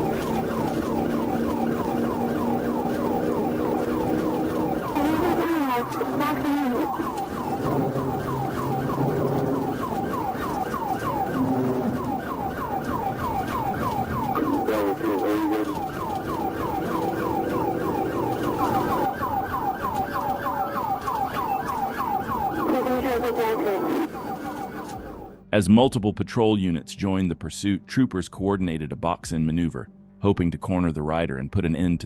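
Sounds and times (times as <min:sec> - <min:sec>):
car engine running: 0:00.0 - 0:25.3
police siren yelping: 0:00.0 - 0:25.4.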